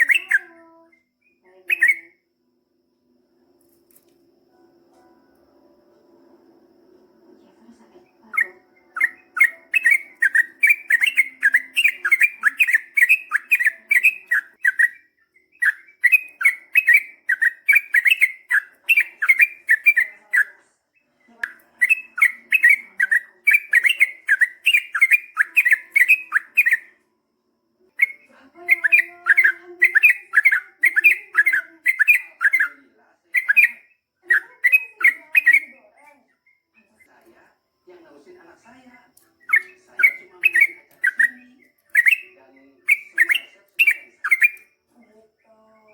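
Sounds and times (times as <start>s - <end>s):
bird singing rapid notes: 0.0s - 2.2s, 8.2s - 27.0s, 27.9s - 37.0s, 39.3s - 44.8s.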